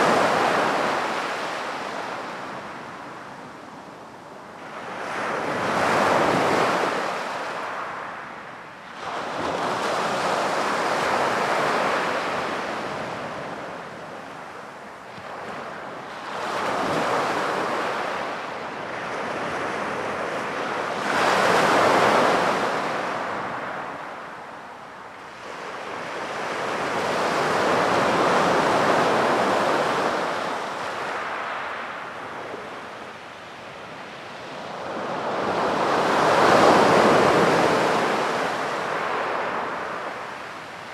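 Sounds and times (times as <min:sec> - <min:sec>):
sea waves breaking on beach: 0:25.3 - 0:40.9.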